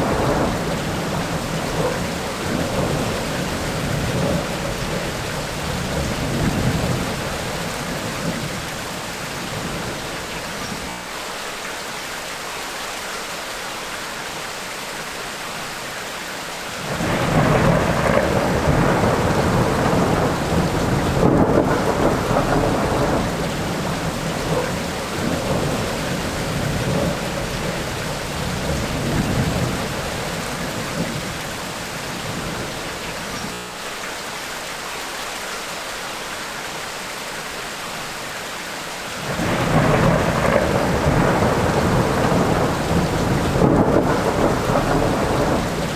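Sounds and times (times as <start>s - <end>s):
rolling thunder: 0.0s - 10.9s, 16.8s - 33.6s, 39.2s - 45.9s
steady rain: 0.0s - 45.9s.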